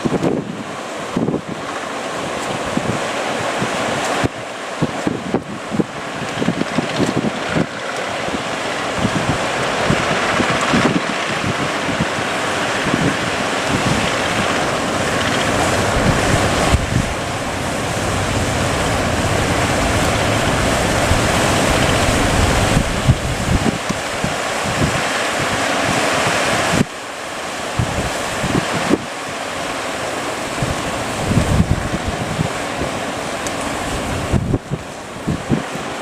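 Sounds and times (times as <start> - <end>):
heavy surf breaking: 0.0 - 36.0
wind buffeting microphone: 0.0 - 36.0.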